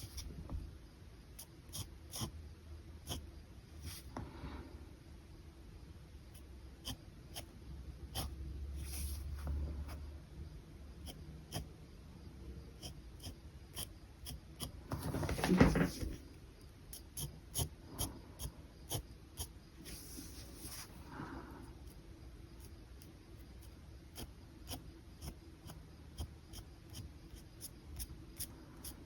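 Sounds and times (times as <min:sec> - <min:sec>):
pen scratching on paper: 0:01.7 - 0:02.3, 0:08.1 - 0:10.0, 0:12.8 - 0:16.2, 0:16.9 - 0:21.0
paper rustle: 0:15.0 - 0:16.2.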